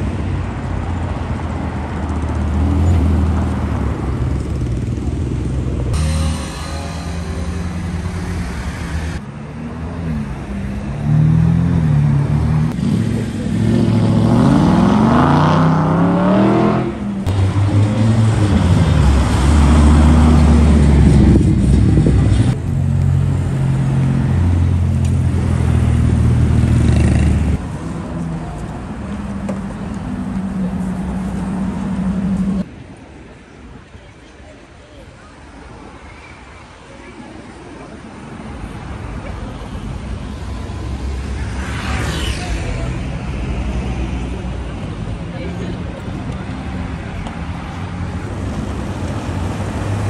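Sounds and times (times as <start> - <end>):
sports car engines revving: 2.1 - 32.7.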